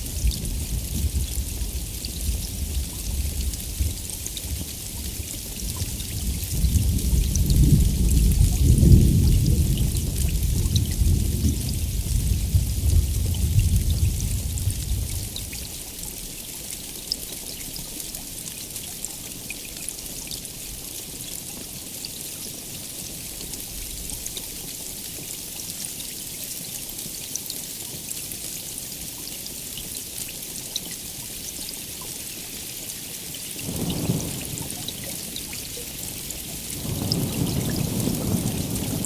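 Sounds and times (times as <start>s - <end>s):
low rumble of thunder: 0.0s - 15.8s, 33.6s - 39.0s
raindrops ticking: 0.0s - 25.5s, 29.0s - 39.0s
heavy rain: 0.0s - 39.0s.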